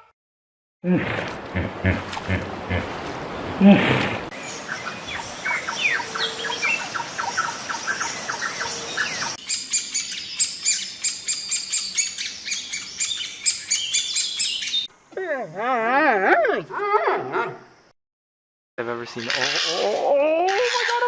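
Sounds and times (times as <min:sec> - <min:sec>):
birds chirping: 0:01.5 - 0:15.1.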